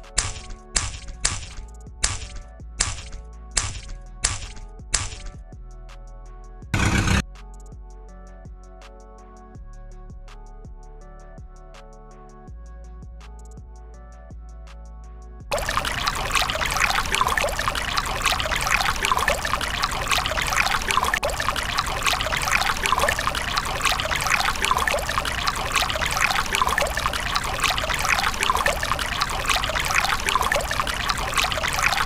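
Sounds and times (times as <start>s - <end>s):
water trickling and splashing: 15.5s - 32.0s.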